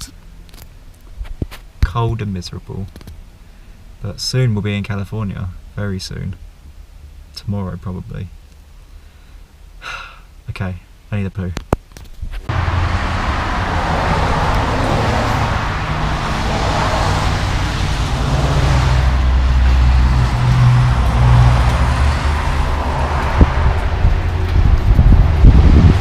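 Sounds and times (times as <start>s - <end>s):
road and tyre noise: 0.0s - 10.6s, 11.6s - 26.0s
low engine hum: 12.5s - 26.0s.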